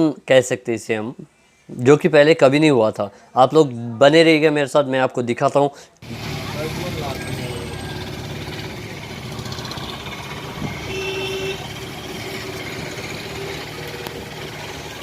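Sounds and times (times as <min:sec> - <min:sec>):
traffic rumble: 0:06.0 - 0:15.0
short horn tone: 0:09.8 - 0:11.9.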